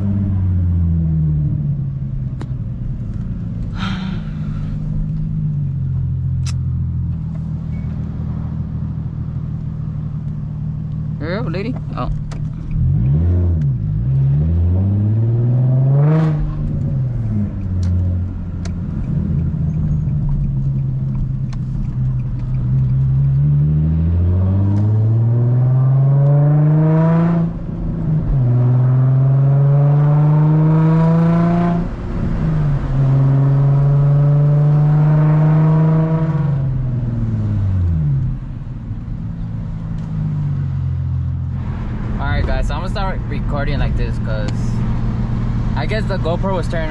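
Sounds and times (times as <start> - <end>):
car exhaust revving through gears: 10.9 - 42.5.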